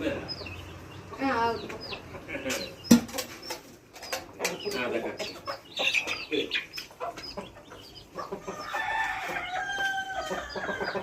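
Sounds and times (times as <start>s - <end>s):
chickens clucking: 0.0s - 11.0s
chickens pecking taps: 0.0s - 11.0s
rooster crowing: 8.4s - 11.0s.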